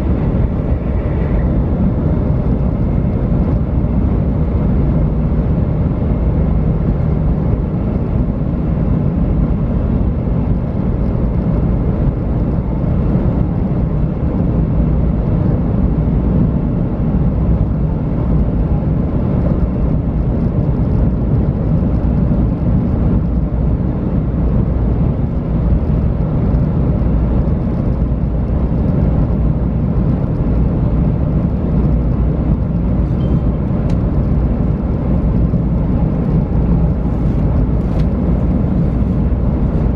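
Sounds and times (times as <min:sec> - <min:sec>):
train wheels and track rumbling: 0:00.0 - 0:04.2, 0:18.0 - 0:39.9.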